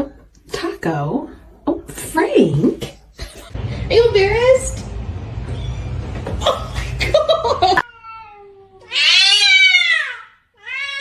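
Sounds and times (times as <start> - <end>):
cat meowing: 7.8 - 11.0.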